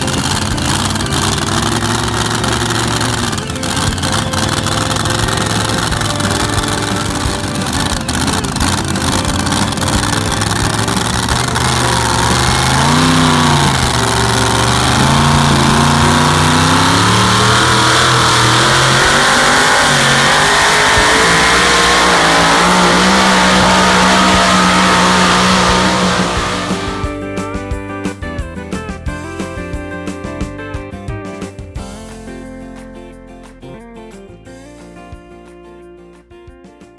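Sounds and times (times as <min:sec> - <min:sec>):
engine at high revs: 0:00.0 - 0:27.2.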